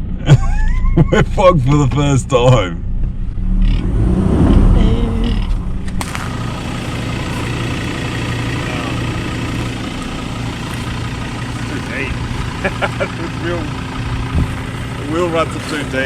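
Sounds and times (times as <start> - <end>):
vehicle engine rumbling and idling: 0.0 - 16.0.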